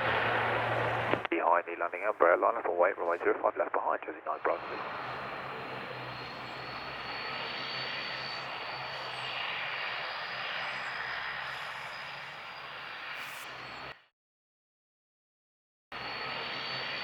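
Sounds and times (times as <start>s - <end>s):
high engine whine: 0.0s - 14.0s, 16.0s - 17.0s
jet engines rushing: 4.1s - 13.8s.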